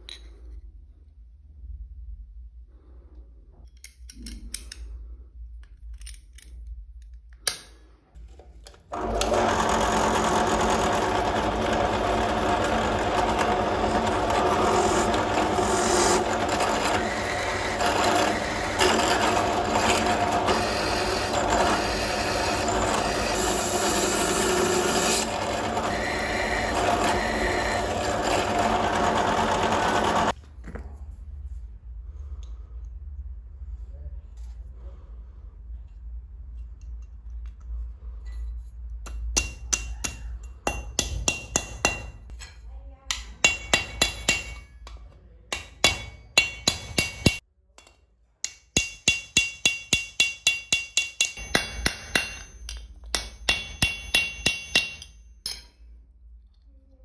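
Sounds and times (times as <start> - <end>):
power tool running: 8.9 - 30.4.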